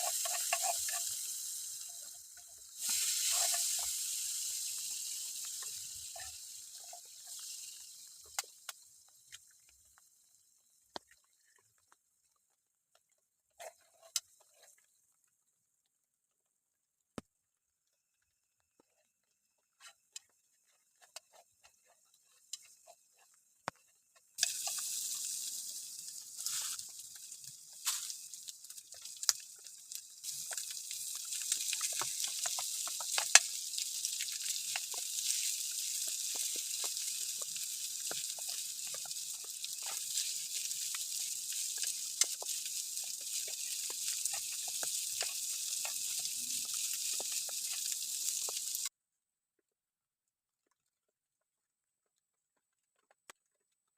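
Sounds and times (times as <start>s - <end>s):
rainwater drips ticking: 24.4s - 48.9s
steady hiss of rain: 24.4s - 48.9s.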